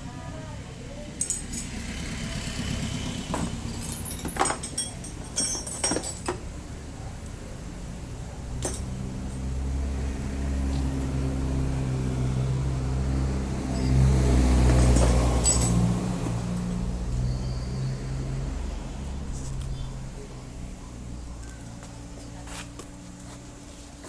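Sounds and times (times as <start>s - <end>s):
scooter engine idling: 0.0s - 24.0s
metal keys jingling: 1.2s - 2.3s, 3.4s - 6.5s, 8.6s - 9.5s, 14.7s - 15.9s.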